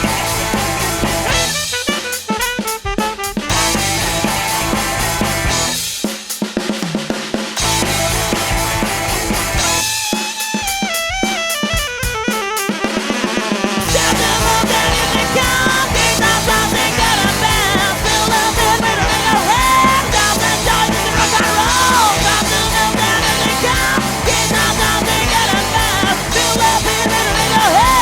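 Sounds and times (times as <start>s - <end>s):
guitar line: 0.0s - 5.9s, 7.6s - 28.0s
rock band playing: 0.0s - 28.0s
person singing: 13.8s - 28.0s.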